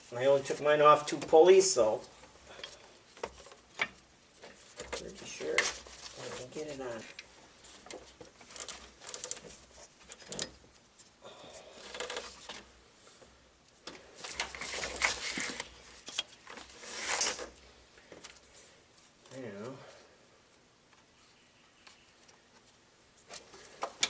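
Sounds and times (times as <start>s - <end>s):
belt rubbing and scraping: 1.8s - 11.1s, 14.1s - 17.7s.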